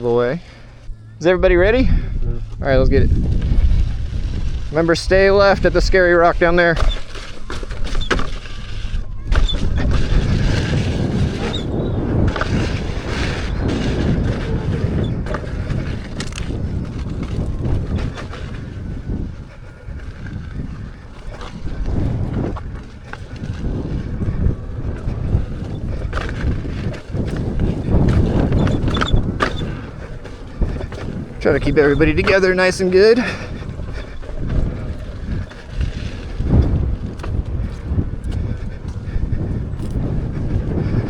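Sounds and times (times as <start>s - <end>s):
wind buffeting microphone: 0.0s - 41.0s
tyre rumbling over dirt and rock: 0.4s - 41.0s.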